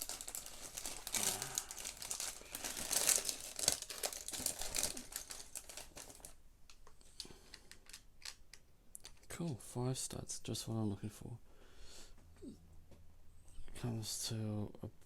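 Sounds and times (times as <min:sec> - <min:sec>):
plastic bags crinkling: 0:00.0 - 0:06.4, 0:07.2 - 0:09.2
plastic pieces rattling: 0:00.0 - 0:06.4, 0:07.5 - 0:08.4.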